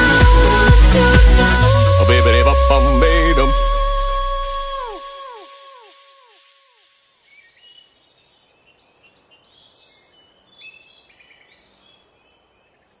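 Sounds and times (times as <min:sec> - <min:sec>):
steady outdoor hiss: 0:06.3 - 0:13.0.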